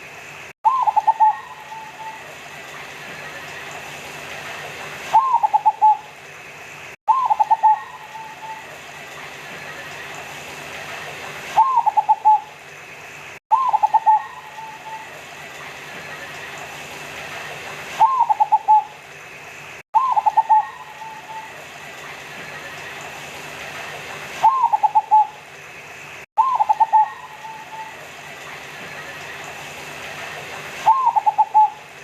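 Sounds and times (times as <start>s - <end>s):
faint steady hum: 0.0s - 32.0s
dove cooing: 0.7s - 2.3s, 5.2s - 6.1s, 7.1s - 8.8s, 11.6s - 12.5s, 13.5s - 15.2s, 18.0s - 18.9s, 20.0s - 21.6s, 24.4s - 25.4s, 26.4s - 28.0s, 30.9s - 31.9s.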